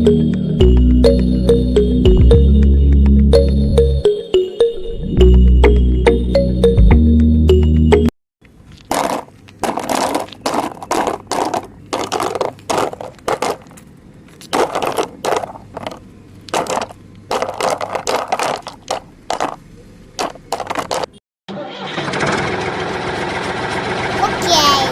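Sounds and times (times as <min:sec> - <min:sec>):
toy digger scraping dirt and stones: 0:08.6 - 0:19.6.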